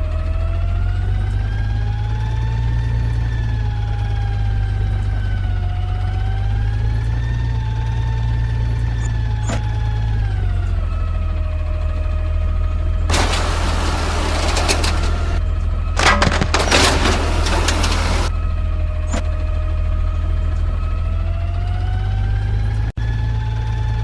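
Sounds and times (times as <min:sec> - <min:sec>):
garbage truck engine rumbling: 0:13.1 - 0:15.4, 0:16.0 - 0:18.3.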